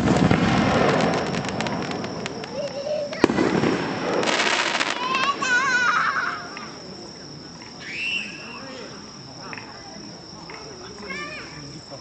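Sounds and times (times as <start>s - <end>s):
crickets trilling: 0.0s - 12.0s
firework crackling: 0.0s - 12.0s
people calling out: 4.8s - 6.9s.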